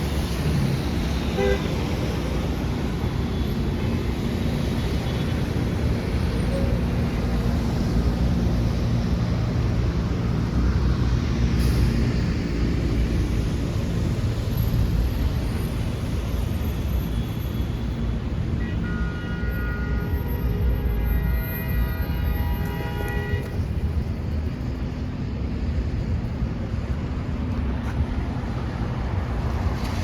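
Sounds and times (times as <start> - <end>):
traffic rumbling past: 0.0 - 17.1.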